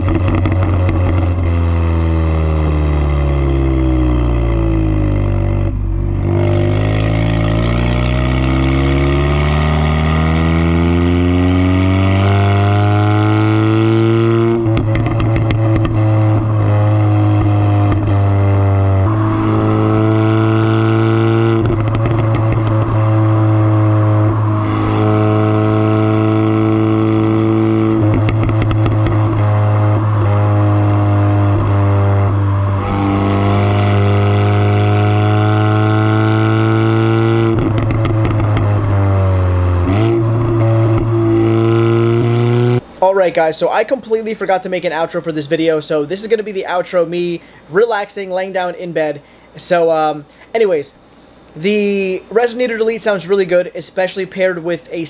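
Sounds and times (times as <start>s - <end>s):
car exhaust revving: 0.0s - 42.9s.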